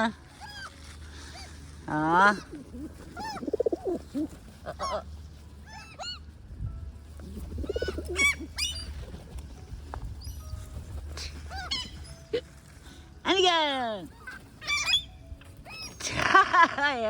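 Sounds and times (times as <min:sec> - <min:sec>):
gulls calling: 0:07.3 - 0:12.4.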